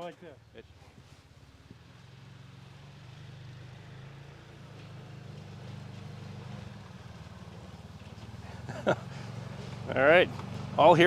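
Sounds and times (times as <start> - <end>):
engine running at low speed: 0.0 - 11.0.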